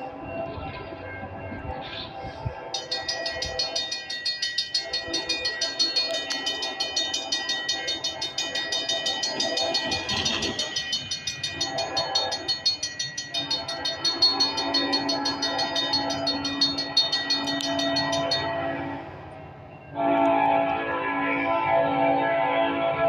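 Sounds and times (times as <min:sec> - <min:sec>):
steady tones from locomotives: 0:00.0 - 0:23.0
train rolling past: 0:00.0 - 0:23.0
high ringing with rapid ticking: 0:02.6 - 0:19.0.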